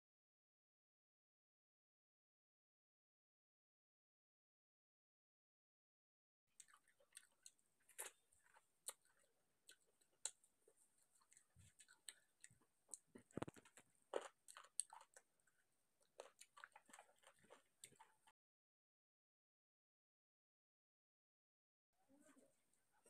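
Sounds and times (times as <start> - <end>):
person chewing food: 6.5 - 18.4.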